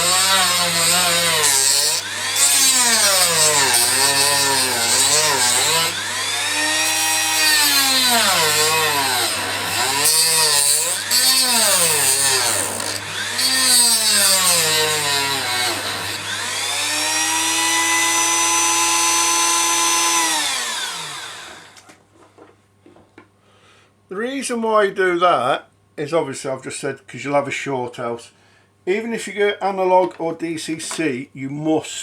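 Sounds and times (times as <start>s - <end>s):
rotary tool whining: 0.0s - 17.8s.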